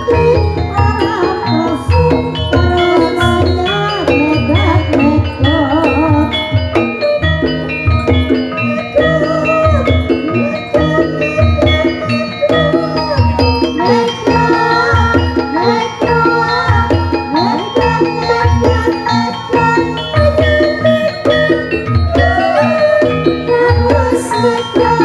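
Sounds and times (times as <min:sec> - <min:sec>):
keyed mallet percussion: 0:00.0 - 0:25.0
wavering melody line: 0:00.0 - 0:25.0.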